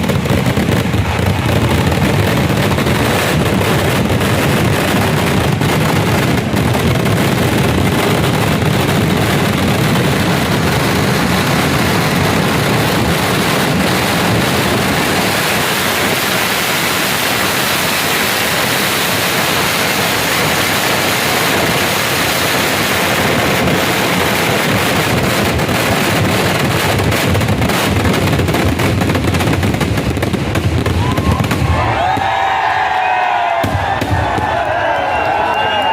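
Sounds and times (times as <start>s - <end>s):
firecracker explosions crackling: 0.0s - 35.9s
whistling fireworks: 0.0s - 35.9s.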